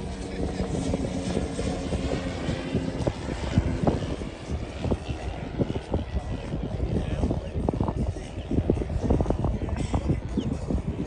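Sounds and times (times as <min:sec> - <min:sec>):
model airplane engine: 0:00.0 - 0:11.0.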